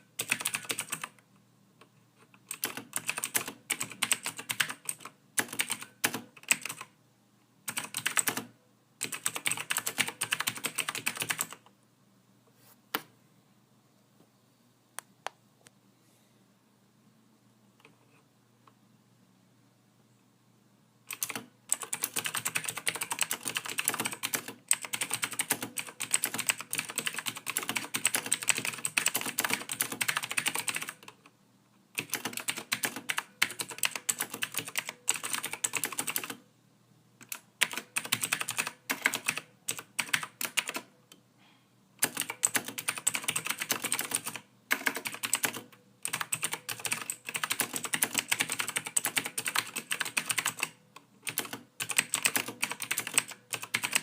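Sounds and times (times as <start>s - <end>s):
keyboard typing: 0.0s - 1.2s, 1.8s - 7.0s, 7.7s - 11.7s, 21.1s - 31.3s, 32.0s - 36.4s, 37.2s - 40.9s, 42.0s - 54.0s.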